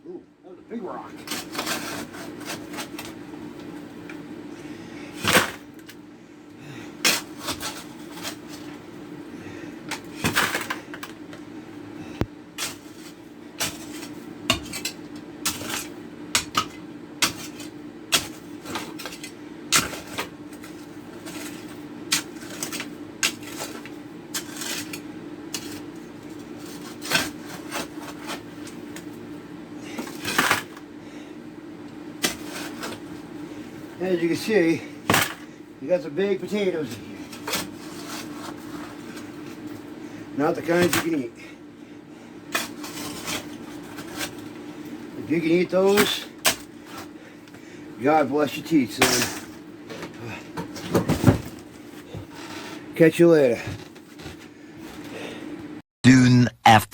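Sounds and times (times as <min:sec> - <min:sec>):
steady low hum: 0:00.0 - 0:56.9
shovel scraping dirt and rocks: 0:01.2 - 0:03.2, 0:05.1 - 0:05.8, 0:07.0 - 0:08.8, 0:10.0 - 0:11.1, 0:12.6 - 0:28.6, 0:29.9 - 0:30.8, 0:32.2 - 0:33.0, 0:36.2 - 0:39.3, 0:40.5 - 0:41.3, 0:42.5 - 0:44.4, 0:45.4 - 0:47.1, 0:48.5 - 0:49.5.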